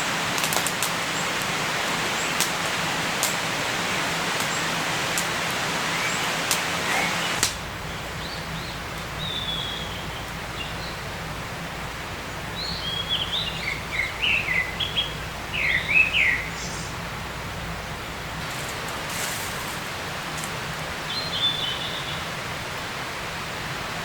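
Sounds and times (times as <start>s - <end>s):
steady forest hiss: 0.0s - 24.0s
songbird chirping and whistling: 5.8s - 11.0s, 12.6s - 16.9s, 21.0s - 22.3s.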